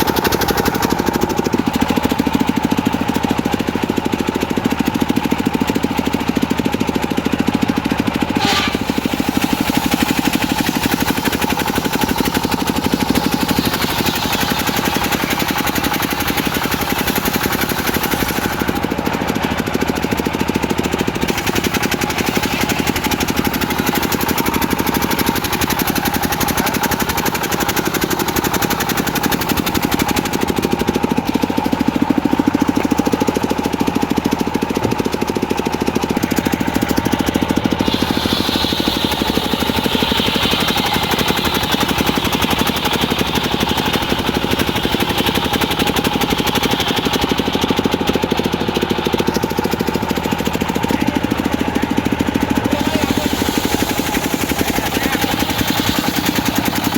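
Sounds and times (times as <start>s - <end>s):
diesel engine chugging: 0.0s - 56.9s
steady high saw tone: 8.3s - 18.8s, 37.1s - 47.4s, 52.6s - 56.9s.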